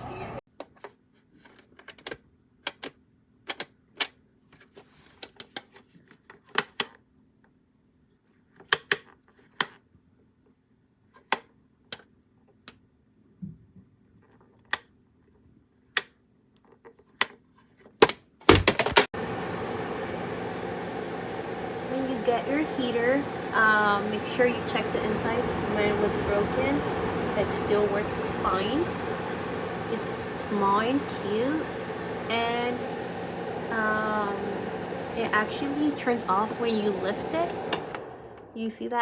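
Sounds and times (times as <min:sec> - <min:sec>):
faint low hum: 0:19.2 - 0:39.0.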